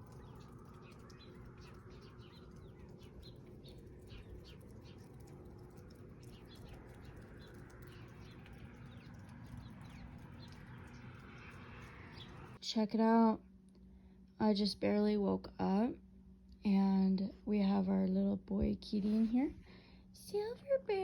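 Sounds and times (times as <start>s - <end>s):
small birds chirping: 0.0s - 12.6s.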